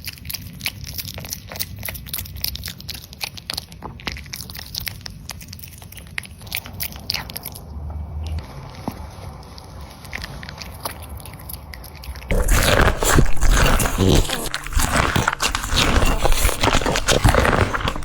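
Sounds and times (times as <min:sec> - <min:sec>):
dog chewing crunchy food: 0:00.0 - 0:18.0.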